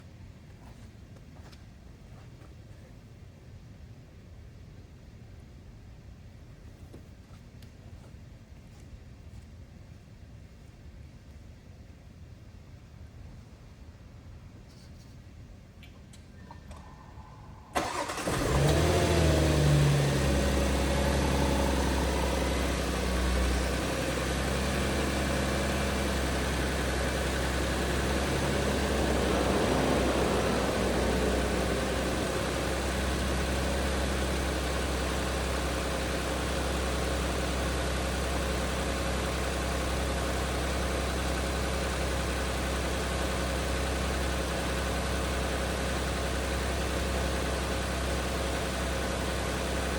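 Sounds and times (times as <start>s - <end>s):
car engine starting and idling: 16.4s - 49.9s.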